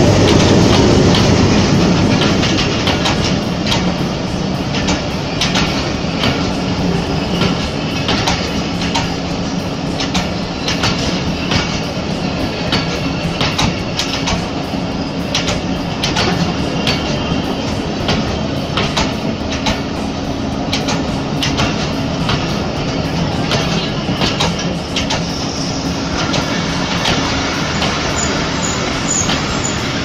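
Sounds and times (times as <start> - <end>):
train coaches rumbling past: 0.0 - 30.0
train wheels clicking on rail joints: 0.0 - 30.0.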